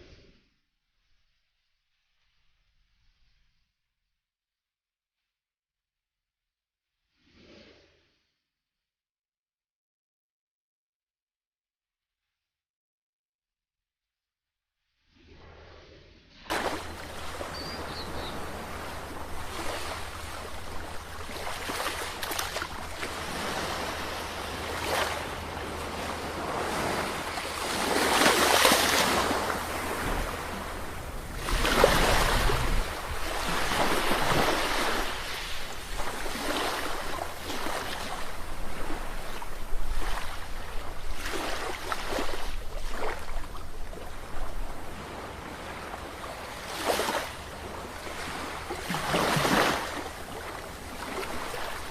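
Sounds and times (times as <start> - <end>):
sea waves breaking on shore: 16.5 - 51.9.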